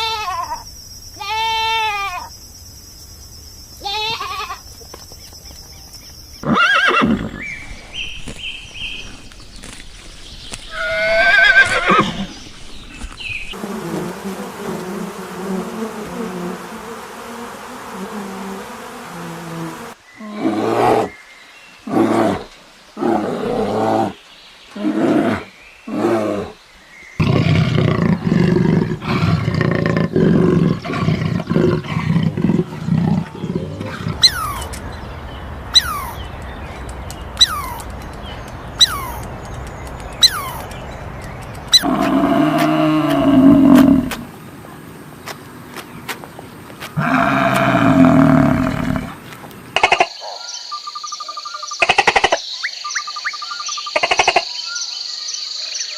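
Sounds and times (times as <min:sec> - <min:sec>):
high animal call: 0:01.2 - 0:02.3, 0:27.2 - 0:34.8, 0:35.7 - 0:36.4, 0:37.3 - 0:38.0, 0:38.7 - 0:39.4, 0:40.2 - 0:40.8, 0:41.7 - 0:44.3, 0:47.0 - 0:49.2
animal calls: 0:27.2 - 0:44.3, 0:47.0 - 0:49.2.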